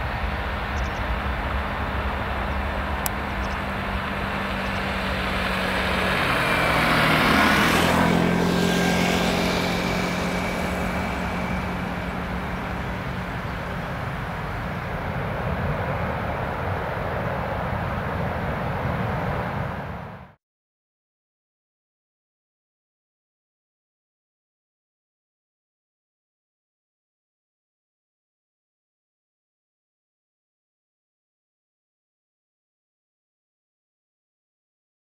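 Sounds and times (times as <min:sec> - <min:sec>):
jet engines whining at takeoff: 0:00.0 - 0:20.4
steady jet rumble: 0:00.0 - 0:20.4.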